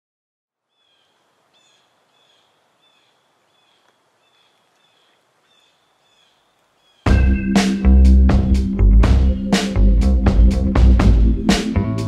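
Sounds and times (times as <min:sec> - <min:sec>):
outdoor hiss: 0:00.6 - 0:07.1
faint bird chirping: 0:00.6 - 0:08.7.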